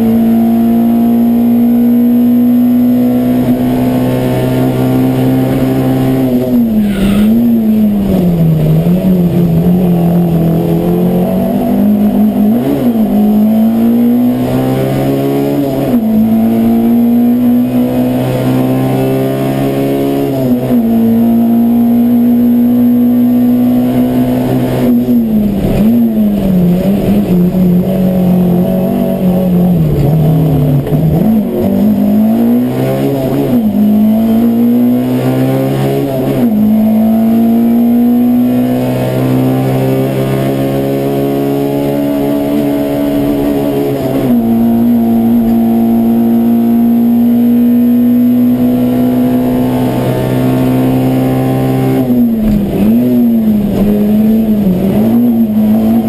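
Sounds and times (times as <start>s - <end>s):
car engine at high revs: 0.0s - 56.0s.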